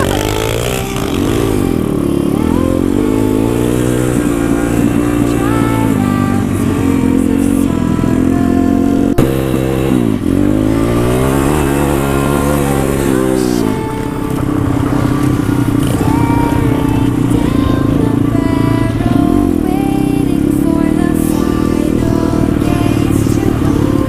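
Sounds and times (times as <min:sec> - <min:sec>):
pit bike engine revving: 0:00.0 - 0:24.0.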